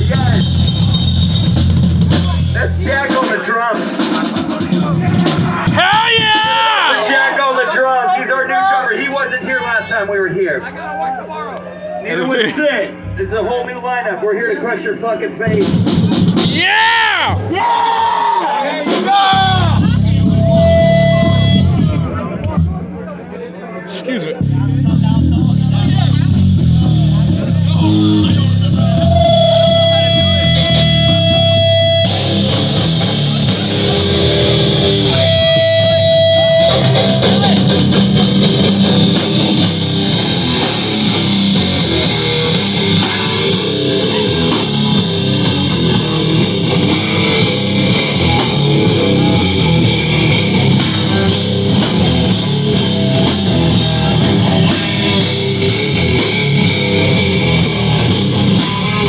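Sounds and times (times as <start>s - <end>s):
heavy rock band playing: 0.0s - 7.7s, 12.9s - 13.8s, 15.3s - 23.0s, 23.9s - 59.0s
held electric guitar notes: 12.9s - 13.7s, 19.3s - 22.9s, 24.4s - 59.0s.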